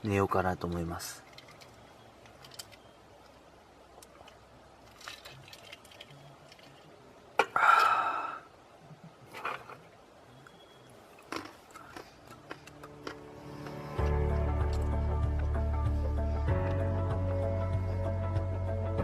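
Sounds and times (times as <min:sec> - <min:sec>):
handling noise clicks and rustling: 0:01.0 - 0:03.4.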